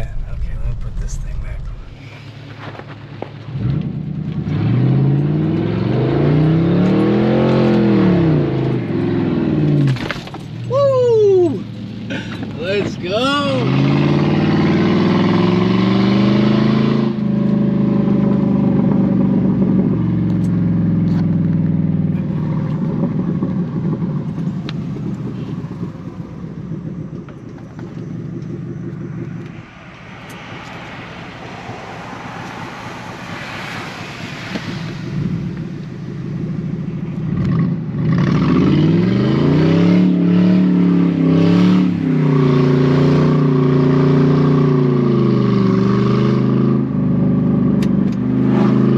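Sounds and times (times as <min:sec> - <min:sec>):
car engine revving hard: 0:03.6 - 0:09.9, 0:12.1 - 0:20.3, 0:37.2 - 0:48.9.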